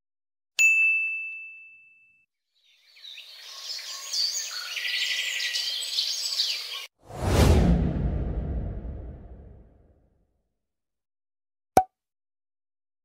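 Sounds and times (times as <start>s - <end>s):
birds chirping and singing: 2.6s - 6.9s.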